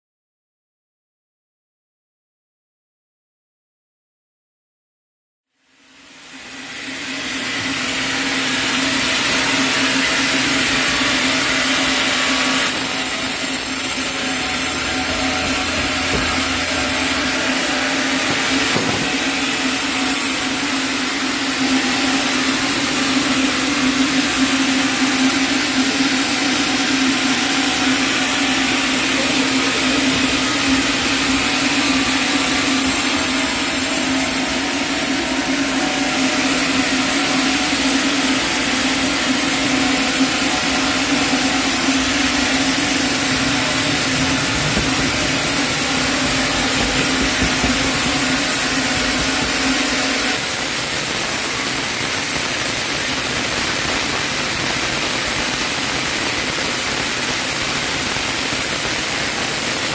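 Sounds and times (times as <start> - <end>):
machinery loud hiss: 5.7 - 59.9
machinery low hum: 6.1 - 51.7.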